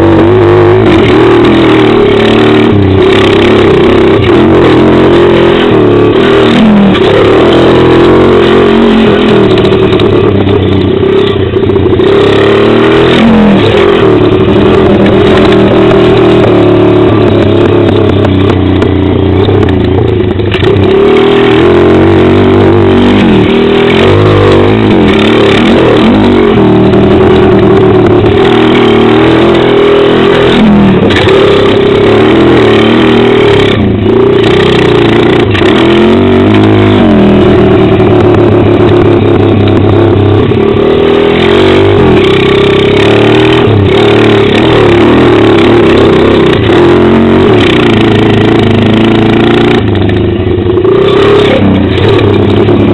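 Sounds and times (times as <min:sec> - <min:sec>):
motorbike engine revving: 0:00.0 - 0:52.9.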